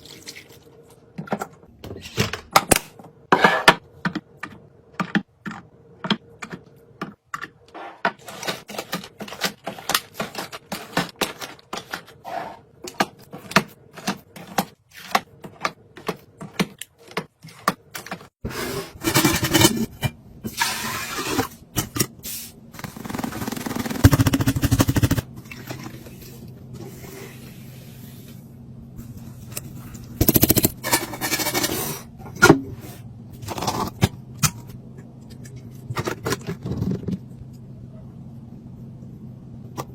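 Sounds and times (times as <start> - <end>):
items clicking and tapping down: 1.2 - 12.2, 12.8 - 18.4
low steady hum: 18.7 - 39.9.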